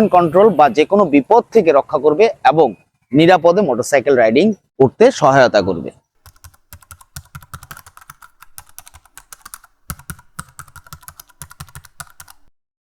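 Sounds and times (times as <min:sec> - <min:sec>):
keyboard typing clicks: 0:06.2 - 0:12.5.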